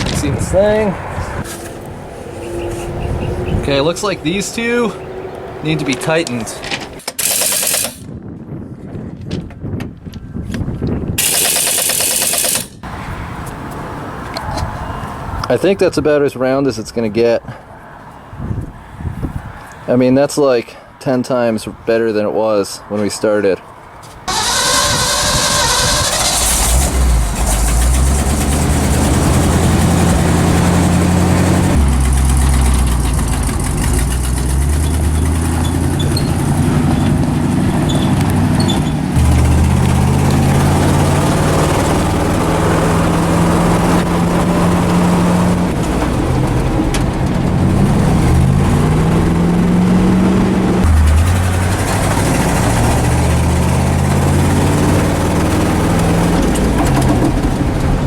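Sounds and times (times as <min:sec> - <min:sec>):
truck engine shifting gears: 0:00.0 - 0:08.1, 0:11.2 - 0:14.6, 0:24.3 - 0:58.0.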